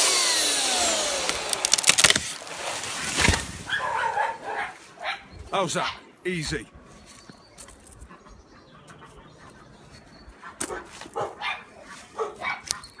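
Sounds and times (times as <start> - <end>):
dog barking: 3.7 - 6.0, 10.5 - 12.8.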